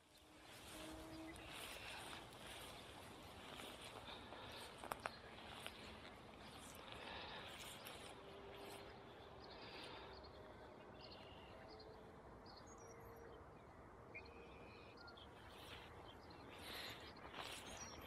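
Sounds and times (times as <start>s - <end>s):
soft rustling: 0.0s - 8.9s
faint bird chirps: 0.0s - 18.0s.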